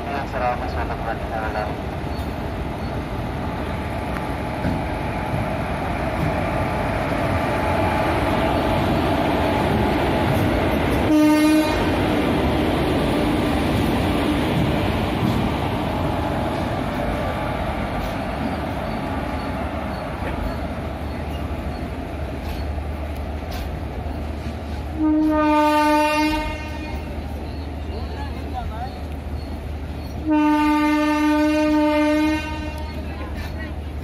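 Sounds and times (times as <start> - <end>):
train wheels rumbling on track: 0.0 - 34.0
train horn blast: 11.0 - 12.0, 24.9 - 27.1, 30.2 - 33.0.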